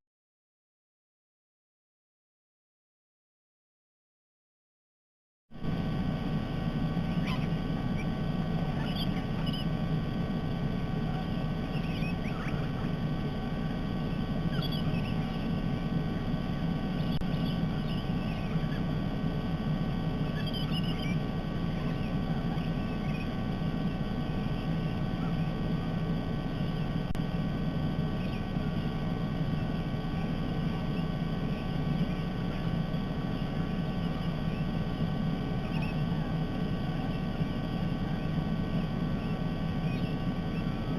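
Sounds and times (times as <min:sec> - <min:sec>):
low outdoor hum: 0:05.5 - 0:40.9
faint bird calls: 0:05.6 - 0:40.9.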